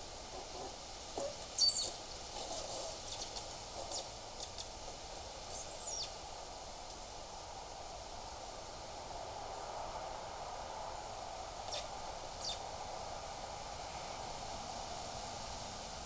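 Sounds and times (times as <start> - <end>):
steady outdoor hiss: 0.0 - 16.0
high-pitched bird calls: 0.5 - 4.7, 5.5 - 6.1.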